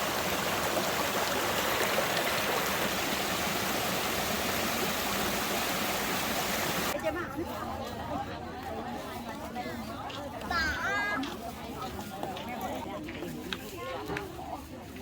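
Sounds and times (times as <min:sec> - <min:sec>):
stream water rushing: 0:00.0 - 0:07.0.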